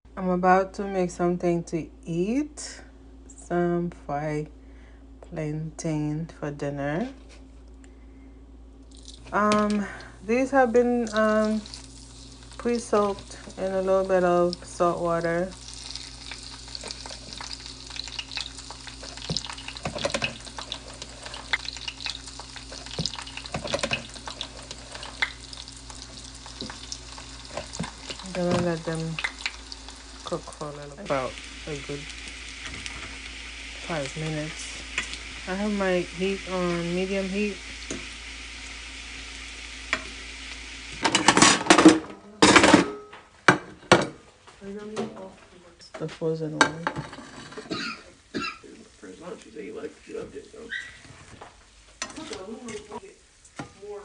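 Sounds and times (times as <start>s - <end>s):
food sizzling in hot oil: 8.9s - 41.9s, 46.9s - 54.0s.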